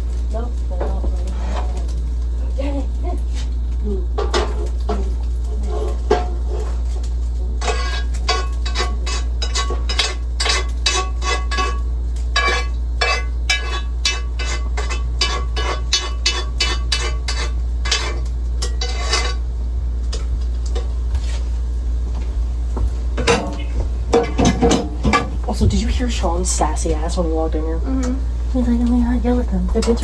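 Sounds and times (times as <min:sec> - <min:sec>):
steady low hum: 0:00.0 - 0:30.0
metal utensil scraping a pot: 0:04.3 - 0:07.0, 0:07.6 - 0:11.8, 0:12.4 - 0:19.4.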